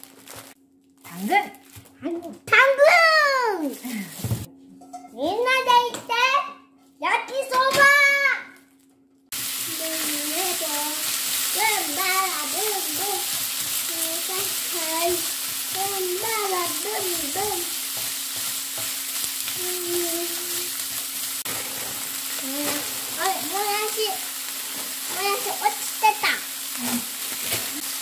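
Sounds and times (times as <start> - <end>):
food sizzling in a frying pan: 9.3 - 28.0
spatula stirring in pan: 9.4 - 23.3.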